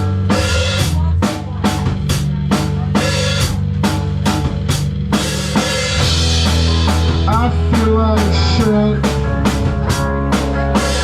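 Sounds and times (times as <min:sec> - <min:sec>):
drum kit steady beat: 0:00.0 - 0:11.0
sustained low notes: 0:00.0 - 0:11.0.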